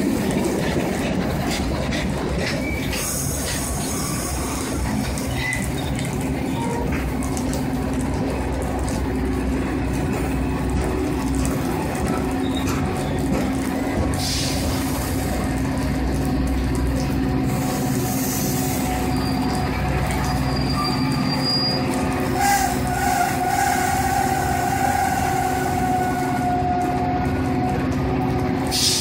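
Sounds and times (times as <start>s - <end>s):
train pulling into station: 0.0s - 29.0s
train brake squeal: 18.1s - 19.6s, 20.2s - 26.2s.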